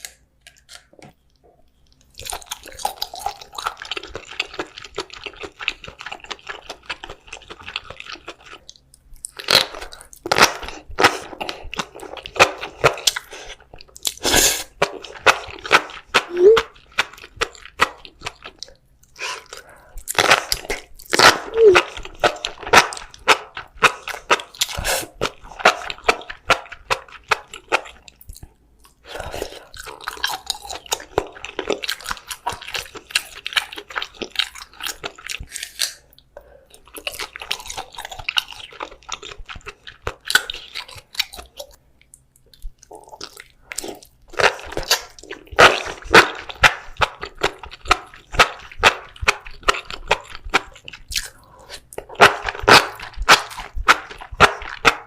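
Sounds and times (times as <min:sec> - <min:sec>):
wet chewing: 0:01.6 - 0:55.0.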